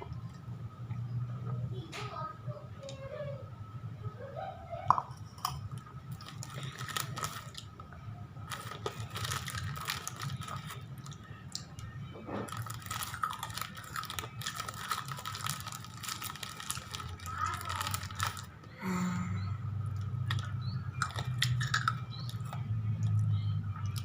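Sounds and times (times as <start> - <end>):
chips being crunched: 5.4 - 7.7, 8.5 - 11.7, 12.5 - 18.5, 20.3 - 23.2.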